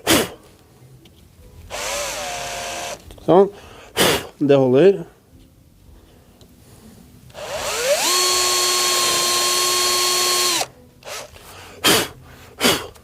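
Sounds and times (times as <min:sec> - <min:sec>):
power drill whining: 0:01.7 - 0:03.0, 0:07.3 - 0:11.3.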